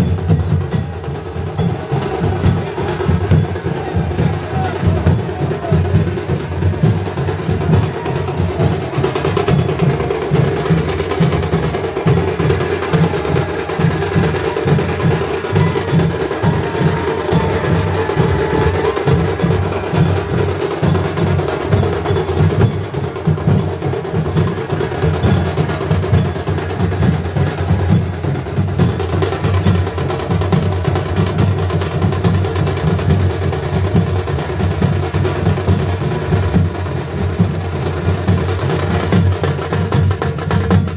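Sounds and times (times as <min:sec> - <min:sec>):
low drum beat: 0:00.0 - 0:31.0
fast sharp drumming: 0:00.0 - 0:40.9.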